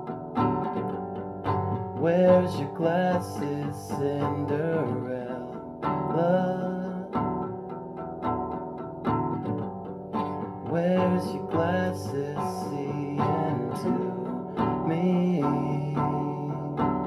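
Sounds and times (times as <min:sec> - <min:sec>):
acoustic guitar plucked and strummed: 0:00.0 - 0:17.0
person singing: 0:02.0 - 0:07.7, 0:10.6 - 0:17.0.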